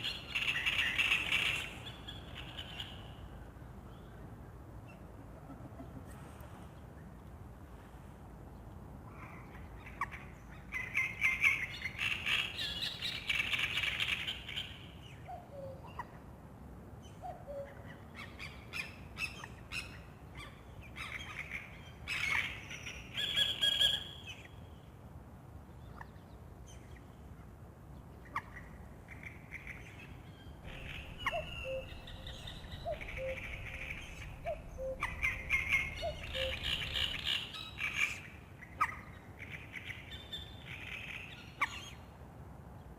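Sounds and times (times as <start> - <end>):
songbirds chirping and trilling: 0.0 - 7.6, 8.4 - 42.9
cuckoo calling: 30.6 - 38.2.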